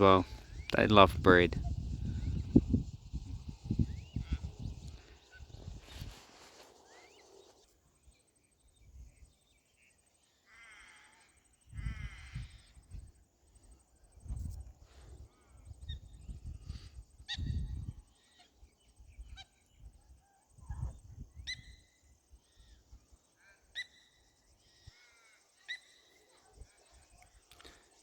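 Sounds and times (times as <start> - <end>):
cicadas buzzing: 0.0 - 8.3
soft bird chatter: 0.0 - 28.0.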